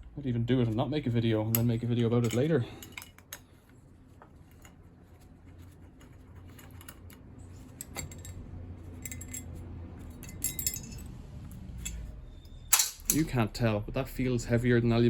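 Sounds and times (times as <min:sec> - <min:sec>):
low steady hum: 0:00.0 - 0:15.0
small metal parts clinking: 0:01.5 - 0:03.4, 0:06.0 - 0:11.1, 0:12.7 - 0:13.3.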